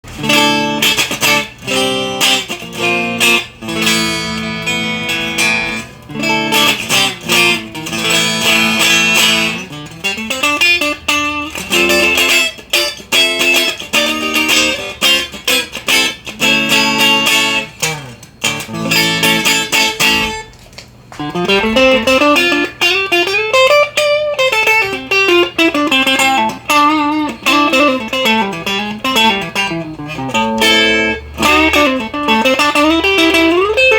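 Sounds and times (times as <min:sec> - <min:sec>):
electric guitar playing: 0:00.0 - 0:33.9.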